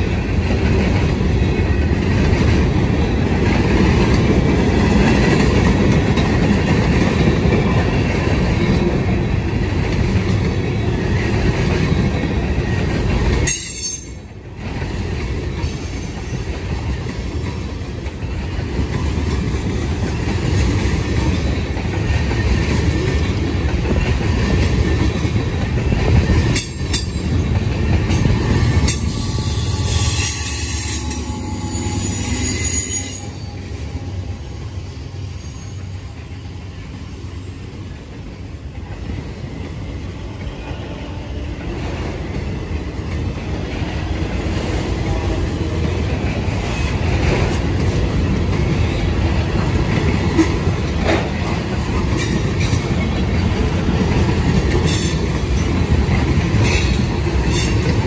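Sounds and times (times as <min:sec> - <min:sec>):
rumble of train wheels on rail: 0:00.0 - 0:58.0
high-pitched wheel squeal: 0:29.1 - 0:34.2.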